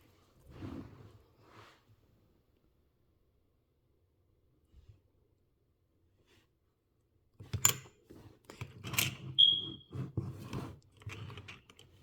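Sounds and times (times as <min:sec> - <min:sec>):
short high squeak: 0:09.4 - 0:09.8.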